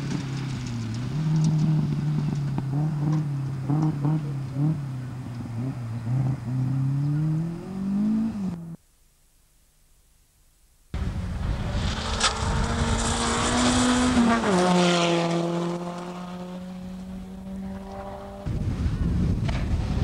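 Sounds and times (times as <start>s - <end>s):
rally car engine running hard: 11.0s - 20.0s.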